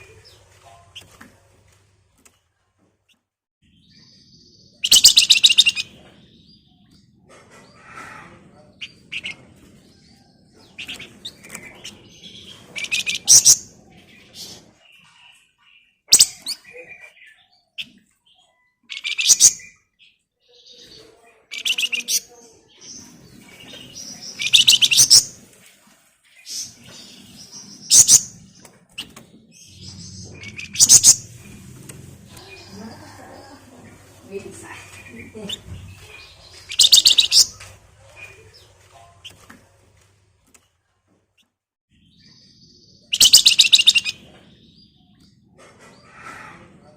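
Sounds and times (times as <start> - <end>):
songbird chirping and chattering: 3.6 - 7.2, 8.2 - 25.5, 26.4 - 39.4, 41.4 - 45.5
songbird rattling trill: 24.4 - 25.3, 30.4 - 31.4, 36.7 - 37.6, 43.1 - 44.2.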